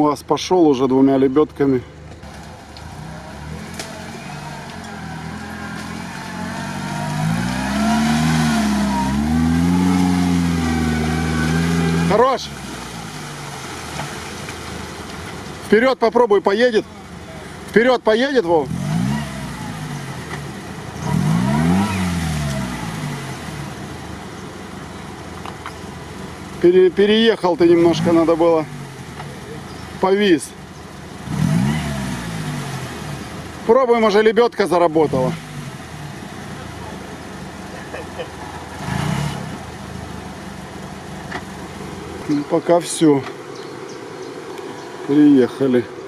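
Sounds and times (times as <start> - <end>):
car engine revving under load: 1.9 - 15.7, 18.4 - 45.2.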